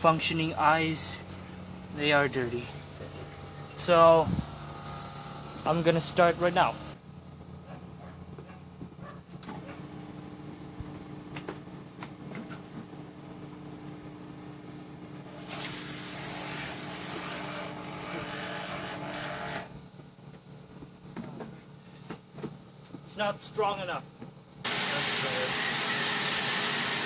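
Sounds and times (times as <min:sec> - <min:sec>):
pressure washer humming: 0:15.2 - 0:18.9, 0:24.7 - 0:27.0
water spray hissing: 0:15.4 - 0:17.5.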